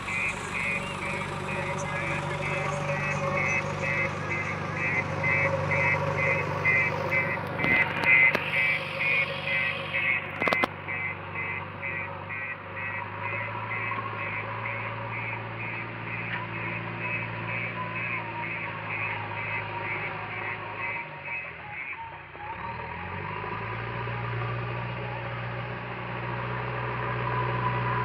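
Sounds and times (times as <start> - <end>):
reversing alarm beeping: 0.0 - 22.6
diesel engine drone: 0.0 - 28.0
sharp clicks: 6.7 - 8.8, 10.0 - 10.8.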